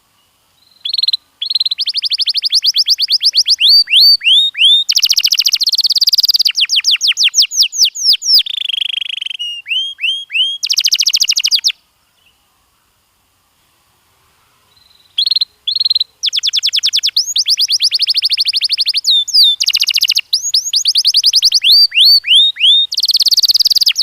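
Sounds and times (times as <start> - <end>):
canary singing trills: 0.6 - 12.4, 14.7 - 24.0.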